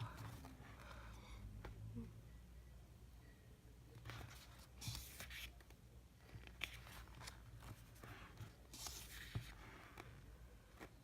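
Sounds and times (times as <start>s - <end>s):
pages rustling: 4.0s - 11.0s.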